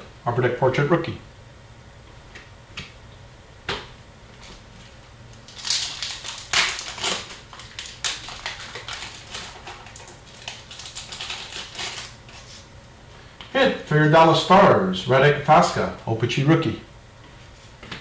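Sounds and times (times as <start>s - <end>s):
wrappers crinkling: 4.4s - 12.6s.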